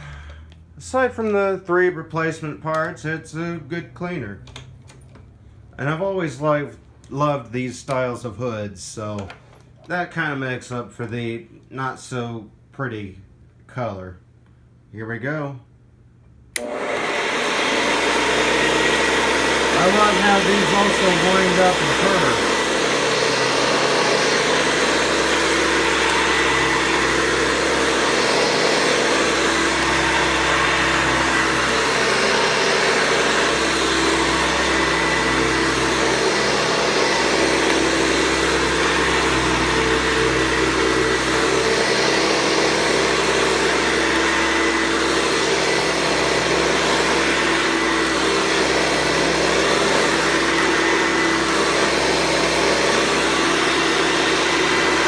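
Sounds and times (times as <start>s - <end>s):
upright vacuum cleaner running: 16.6s - 55.0s.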